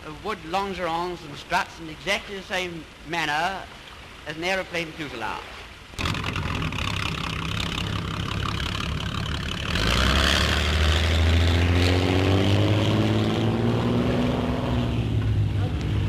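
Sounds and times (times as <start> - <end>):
motorboat engine revving: 6.0 - 16.0.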